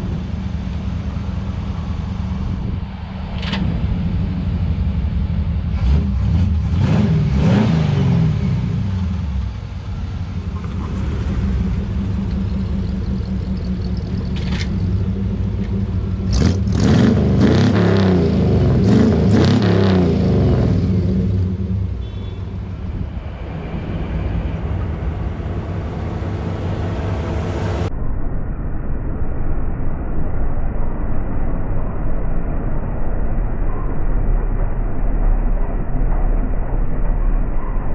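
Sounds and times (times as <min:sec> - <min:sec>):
pickup engine revving: 0:00.0 - 0:27.9
sharp clicks and knocks: 0:11.7 - 0:16.0.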